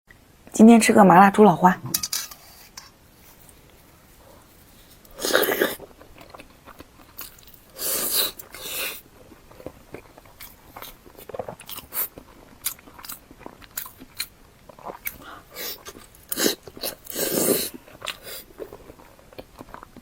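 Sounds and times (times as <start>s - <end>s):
chewing clicks: 5.0s - 20.0s.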